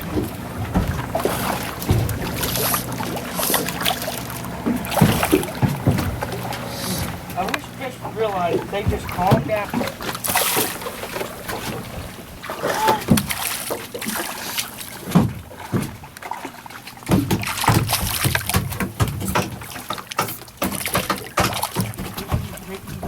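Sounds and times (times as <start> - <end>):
irregular knocks: 0.0 - 7.8, 8.6 - 10.0
water splashing around boat: 0.0 - 23.0.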